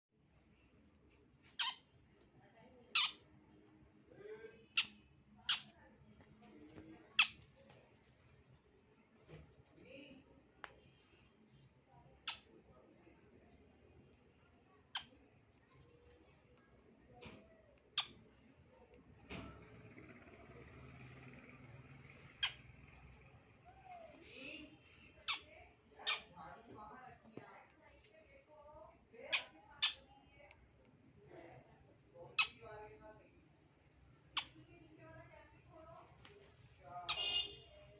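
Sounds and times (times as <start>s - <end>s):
faint low hum: 0.2s - 37.9s.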